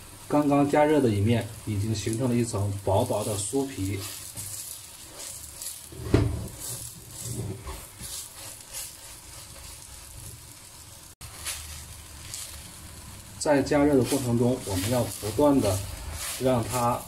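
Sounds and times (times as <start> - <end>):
pancake sizzling in oil: 0.0 - 17.0
wooden spatula scraping a pan: 2.9 - 10.5, 11.2 - 12.8, 13.6 - 17.0.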